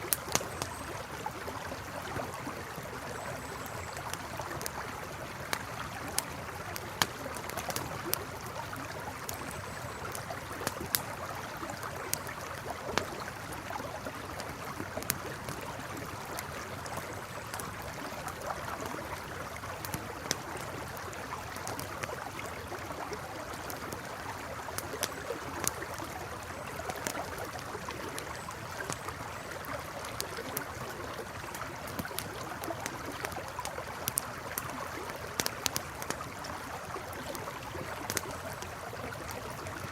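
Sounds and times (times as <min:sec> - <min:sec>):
campfire crackling: 0:00.0 - 0:39.9
river flowing: 0:00.0 - 0:39.9.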